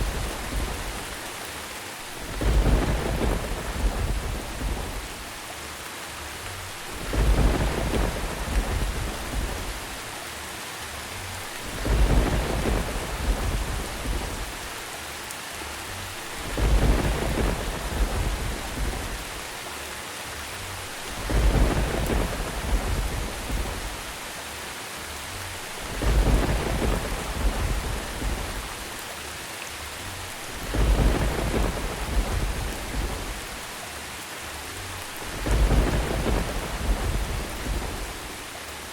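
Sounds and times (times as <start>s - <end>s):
deep rumble of thunder: 0.0s - 1.2s, 2.1s - 5.4s, 6.7s - 10.2s, 11.4s - 14.9s, 16.1s - 19.6s, 20.8s - 24.4s, 25.5s - 29.1s, 30.3s - 33.8s, 35.0s - 38.5s
steady rain hiss: 0.0s - 38.9s.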